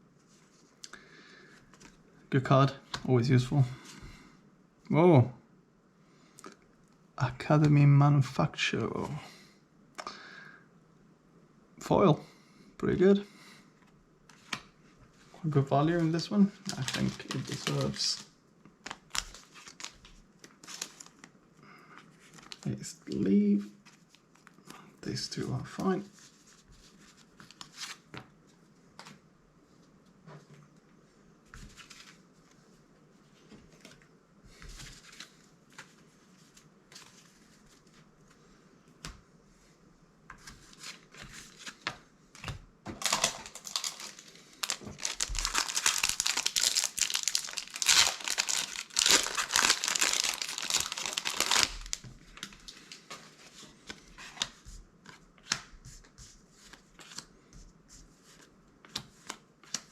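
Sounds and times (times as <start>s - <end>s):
plastic wrapper crinkling: 16.6s - 21.3s, 43.0s - 53.0s.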